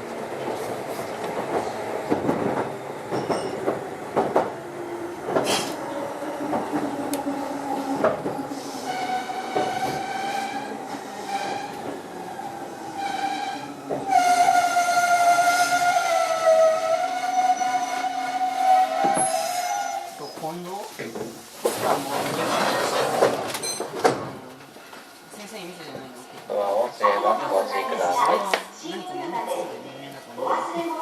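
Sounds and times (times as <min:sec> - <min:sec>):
train wheels clacking over rails: 0:00.4 - 0:04.6, 0:05.2 - 0:12.0.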